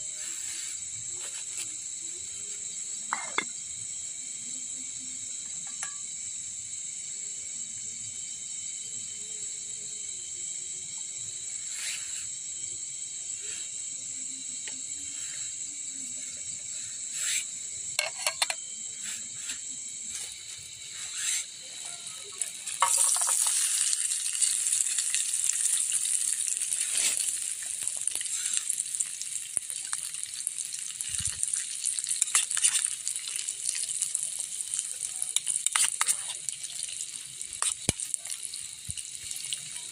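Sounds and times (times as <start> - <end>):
food sizzling in hot oil: 0.0 - 7.6, 8.2 - 39.9
forest insects droning: 0.0 - 39.9
cookware clicks and knocks: 3.1 - 3.5, 18.0 - 18.6.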